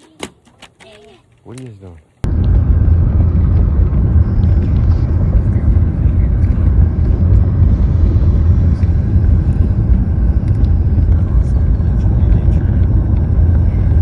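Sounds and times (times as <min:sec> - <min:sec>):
loud low rumble: 0:02.2 - 0:14.0.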